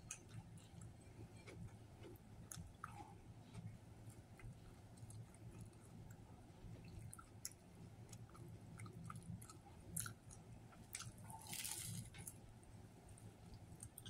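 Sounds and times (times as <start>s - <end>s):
man chewing with wet clicks: 0.0s - 14.0s
biting sandwich rustle: 11.0s - 12.3s.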